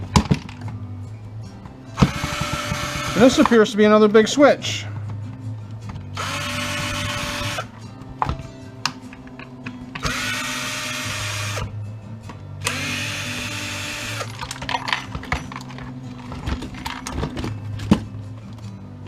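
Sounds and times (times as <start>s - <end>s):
clicks and knocks of parts handled: 0.0s - 0.8s, 8.1s - 10.1s, 14.2s - 18.8s.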